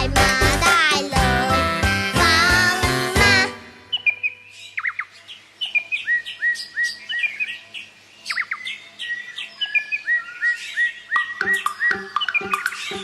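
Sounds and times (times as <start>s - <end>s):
birds chirping: 3.7s - 13.0s.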